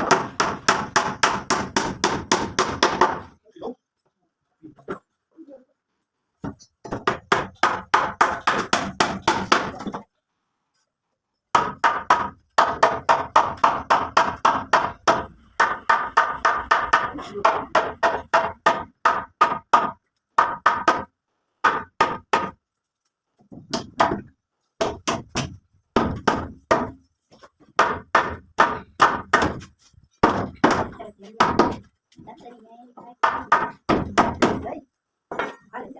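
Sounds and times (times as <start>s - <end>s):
hand tool striking wood: 23.5s - 31.9s.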